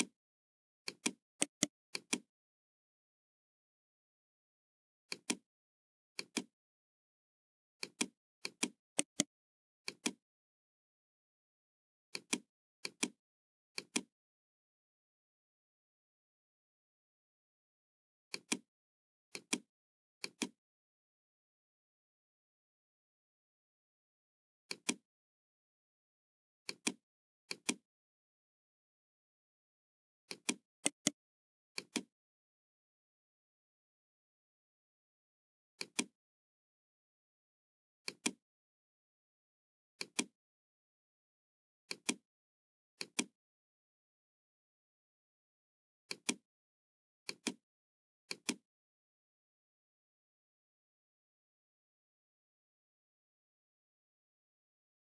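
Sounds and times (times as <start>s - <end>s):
computer mouse clicking: 0.9s - 2.2s, 5.1s - 5.4s, 7.8s - 9.3s, 9.9s - 10.2s, 30.3s - 31.2s, 35.8s - 36.1s, 38.1s - 38.4s, 40.0s - 40.3s, 41.9s - 42.2s, 43.0s - 43.3s, 46.1s - 46.4s, 47.3s - 47.6s.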